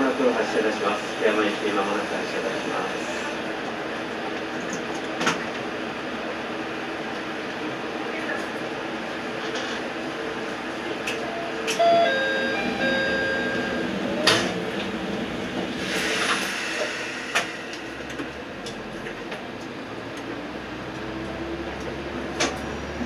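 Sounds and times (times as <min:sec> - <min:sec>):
diesel railcar hum: 0:00.0 - 0:23.0
brief rush of noise: 0:15.6 - 0:18.5.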